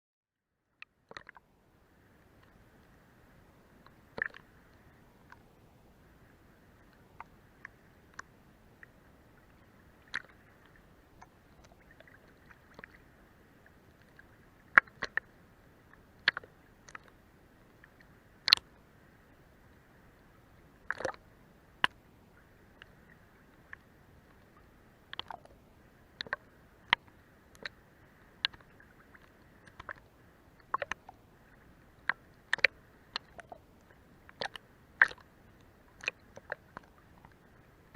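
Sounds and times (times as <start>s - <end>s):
faint steady wash: 0.6s - 37.9s
water dripping: 1.1s - 1.4s, 3.8s - 5.4s, 6.8s - 15.2s, 15.9s - 17.2s, 17.8s - 18.7s, 20.9s - 21.2s, 22.7s - 25.6s, 26.2s - 27.8s, 28.4s - 31.2s, 32.0s - 37.5s
water slapping boat hull: 3.8s - 15.3s, 19.9s - 21.2s, 21.8s - 37.9s.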